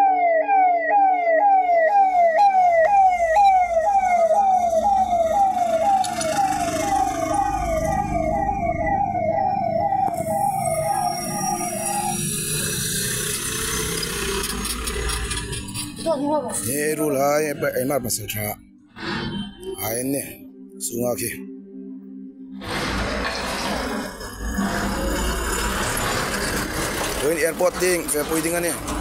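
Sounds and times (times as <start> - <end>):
emergency siren wailing: 0.0 - 15.2
vehicle and street noise: 2.0 - 20.3, 22.6 - 29.0.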